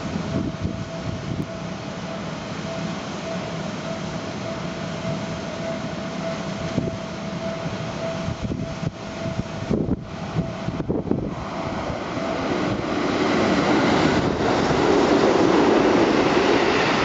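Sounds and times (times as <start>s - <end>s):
thin high tone: 0.0s - 13.6s
electric train rumble: 0.0s - 17.0s.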